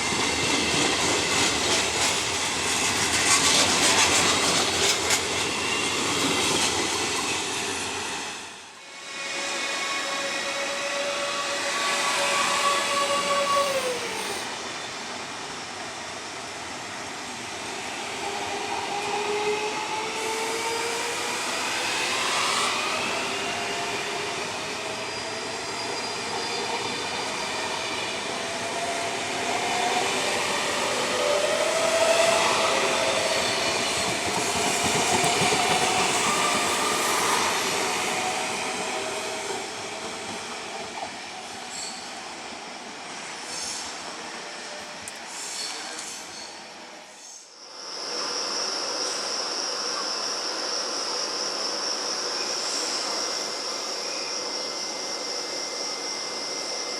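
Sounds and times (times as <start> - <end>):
electric train whining tones: 8.4 - 15.8.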